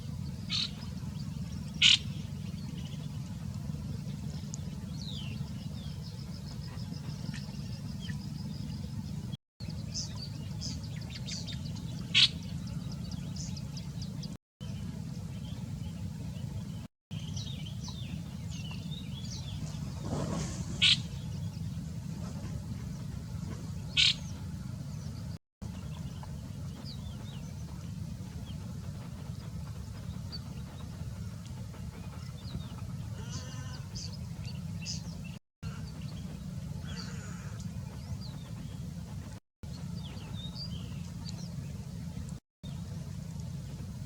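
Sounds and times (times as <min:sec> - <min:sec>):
small birds chirping: 0:00.0 - 0:21.8, 0:22.8 - 0:38.9
steady low rumble: 0:00.0 - 0:44.0
loud sharp bird call: 0:24.0 - 0:24.2.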